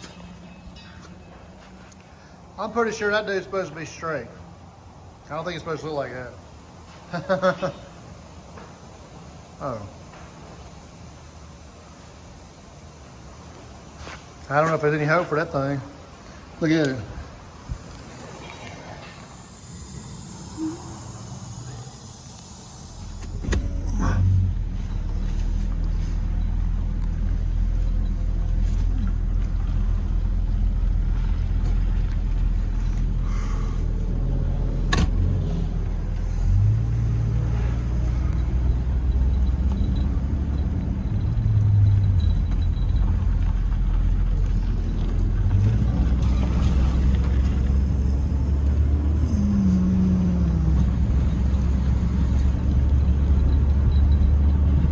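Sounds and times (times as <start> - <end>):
car engine drone: 0.0 - 54.9
short hiss: 16.0 - 23.8.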